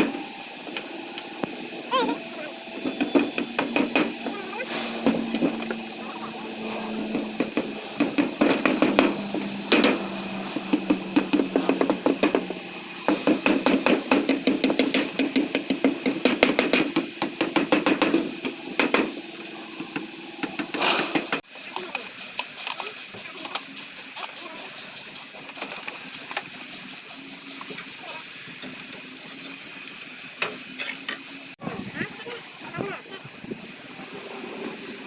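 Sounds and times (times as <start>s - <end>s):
hammering sharp knocks: 2.0s - 19.2s, 19.8s - 21.4s.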